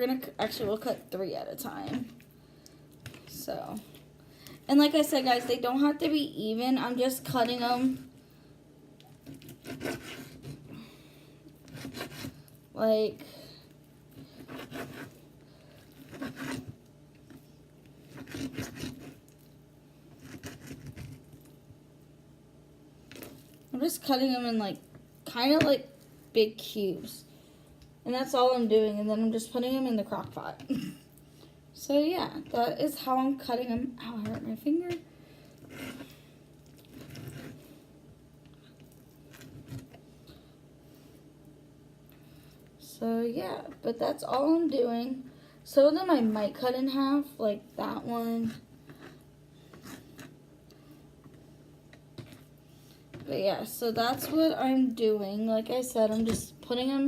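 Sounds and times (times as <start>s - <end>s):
knife sawing through raw meat: 9.5s - 10.6s, 11.6s - 12.4s, 14.4s - 15.2s, 16.0s - 16.7s, 18.1s - 19.2s.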